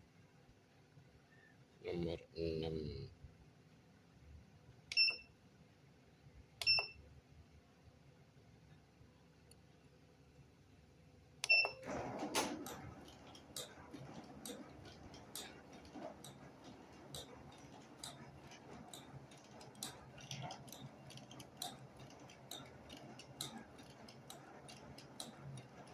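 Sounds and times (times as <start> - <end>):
short beep: 11.4 - 12.0.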